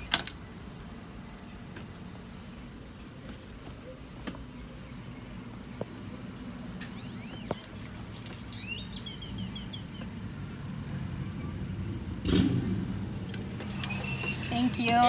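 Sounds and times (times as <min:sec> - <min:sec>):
bird chirping: 0:06.8 - 0:10.2.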